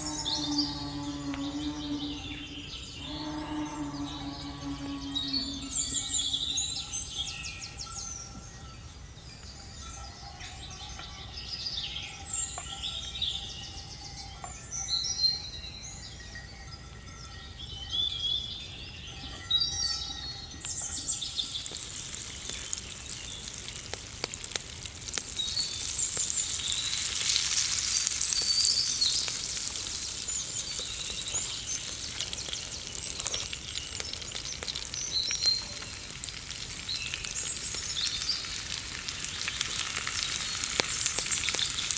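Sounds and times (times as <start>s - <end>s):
food sizzling in hot oil: 0.0s - 7.8s, 20.6s - 41.9s
birds chirping: 0.0s - 24.5s, 25.2s - 41.9s.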